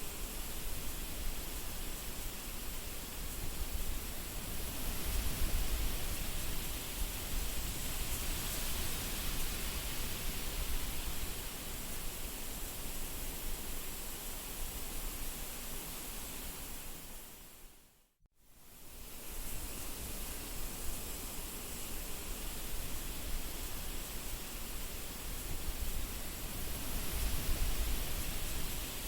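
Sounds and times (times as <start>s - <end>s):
wind blowing: 23.9s - 29.0s.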